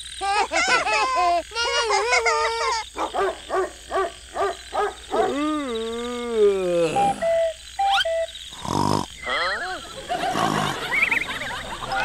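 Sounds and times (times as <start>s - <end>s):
long wavering falling call: 6.6s - 8.4s
short beeping tones: 6.9s - 8.4s.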